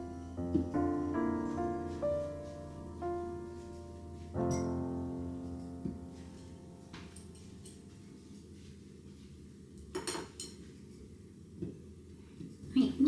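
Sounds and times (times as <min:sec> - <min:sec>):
gentle solo piano music: 0:00.0 - 0:07.8.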